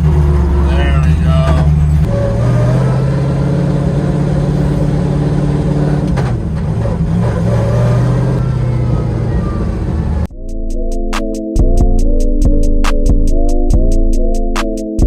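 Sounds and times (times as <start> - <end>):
car engine droning: 0.0 - 10.4.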